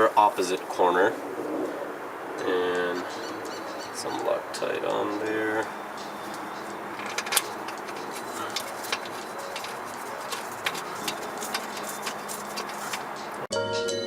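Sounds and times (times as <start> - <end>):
metal bolts clicking: 5.9 - 13.5.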